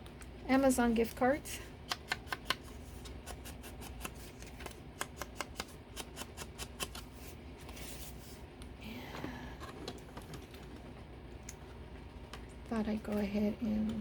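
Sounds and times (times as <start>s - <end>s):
paper clicks and taps: 1.9s - 2.7s, 3.8s - 7.0s.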